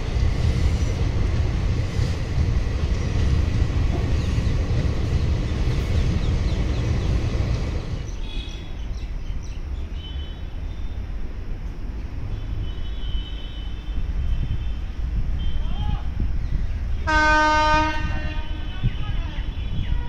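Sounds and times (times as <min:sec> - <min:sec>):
train wheels rumbling on track: 0:00.0 - 0:20.0.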